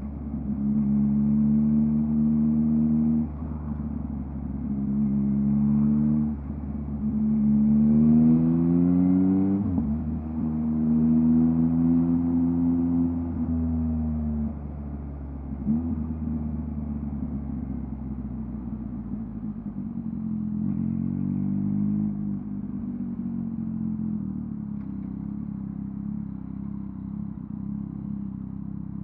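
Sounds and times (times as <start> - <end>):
motorcycle engine running: 22.0 - 29.0.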